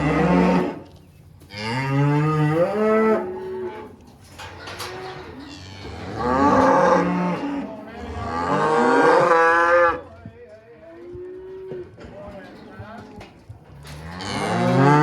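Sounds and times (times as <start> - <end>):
cattle mooing: 0.0 - 0.9, 1.5 - 3.9, 4.6 - 10.0, 13.8 - 15.0.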